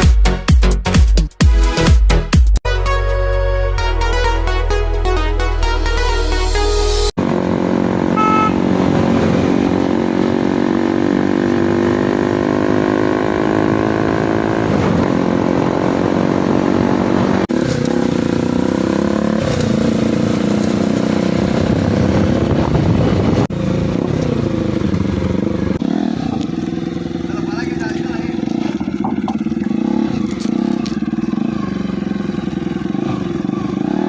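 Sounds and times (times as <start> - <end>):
dirt bike engines revving: 7.2 - 34.0.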